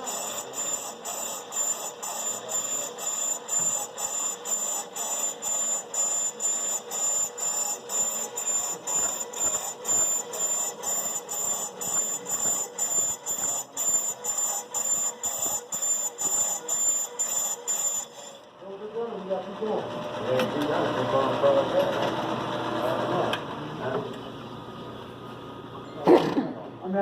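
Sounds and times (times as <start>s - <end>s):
lathe cutting bit shrieking: 0.0s - 18.5s.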